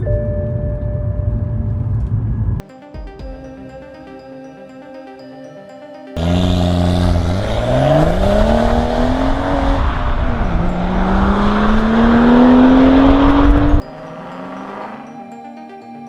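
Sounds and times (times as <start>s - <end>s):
car engine accelerating: 6.2s - 15.5s.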